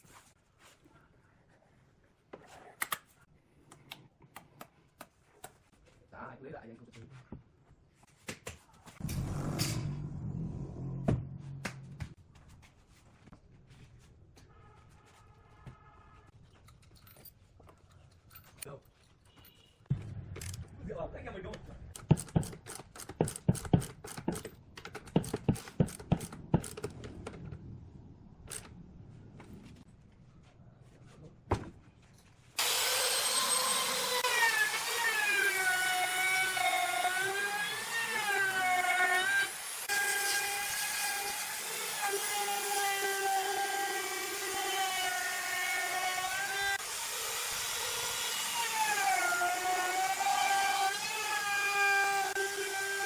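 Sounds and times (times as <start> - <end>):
woodworking power tool running: 32.6 - 53.0.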